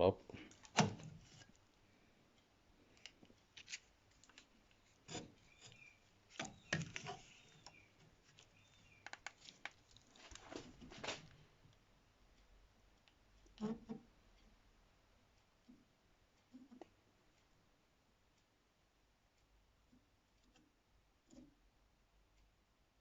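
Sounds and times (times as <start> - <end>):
ruler scraping: 5.0 - 7.5.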